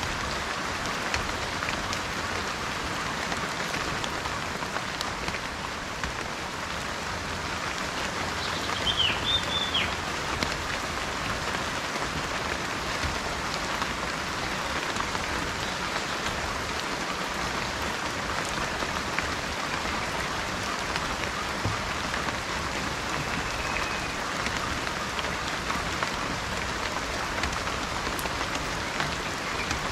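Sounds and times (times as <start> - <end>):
steady rain falling: 0.0 - 29.9
bird call: 8.4 - 10.0, 23.2 - 24.2.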